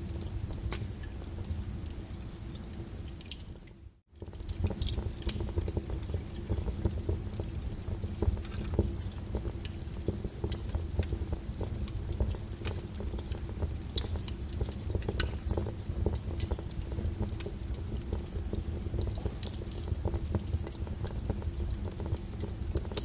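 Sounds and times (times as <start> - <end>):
low rumble of burning: 0.0 - 23.0
wood fire crackling and popping: 0.0 - 23.0.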